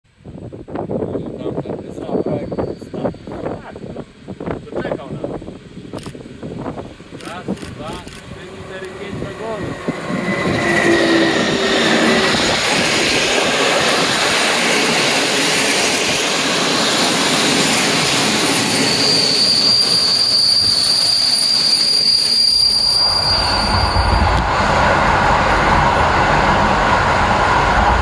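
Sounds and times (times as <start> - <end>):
high wheel squeal: 1.6 - 4.0, 8.0 - 26.7
train wheels on rails: 1.6 - 28.0.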